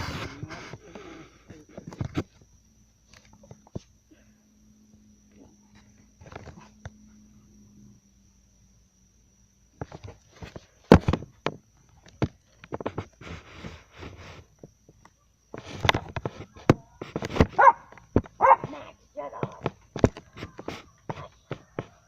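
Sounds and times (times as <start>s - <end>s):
dog barking and yelping: 17.6s - 19.7s.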